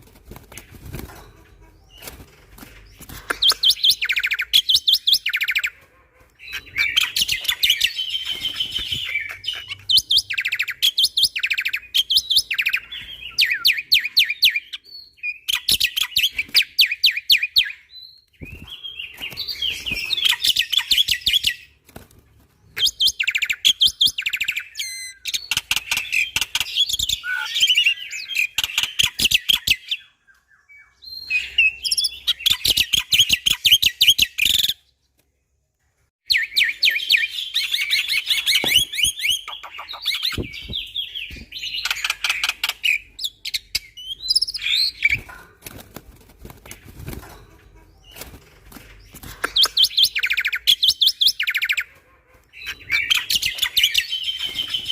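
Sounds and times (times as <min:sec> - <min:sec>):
starling chattering song: 0:37.8 - 0:43.7.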